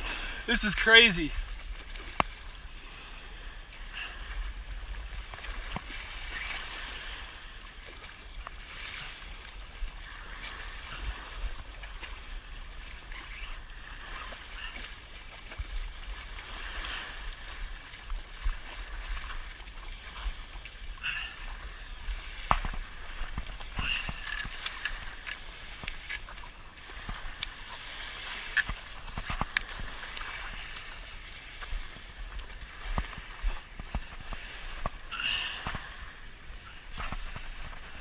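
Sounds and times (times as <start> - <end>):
seawater splashing at shoreline: 0.0 - 38.0
wind rumble on microphone: 21.7 - 38.0.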